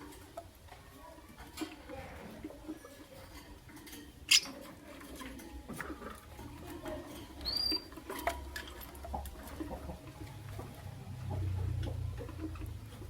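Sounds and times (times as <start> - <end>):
feet and beaks scratching cage: 0.0 - 13.0
lovebird chirping: 4.3 - 4.5, 7.4 - 7.9.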